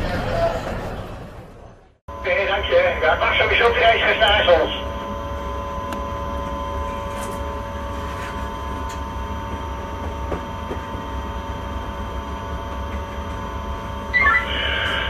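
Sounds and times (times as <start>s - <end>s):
electrical tones: 14.0s - 15.0s.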